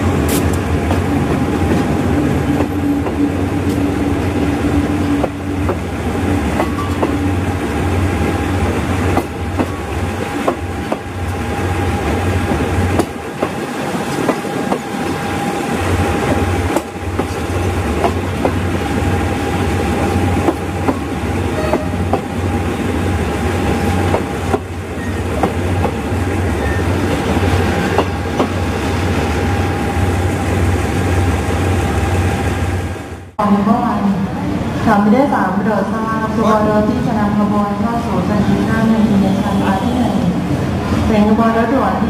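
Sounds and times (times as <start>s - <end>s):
train wheels clicking over rail joints: 16.2s - 18.8s, 19.8s - 22.4s, 23.7s - 26.1s.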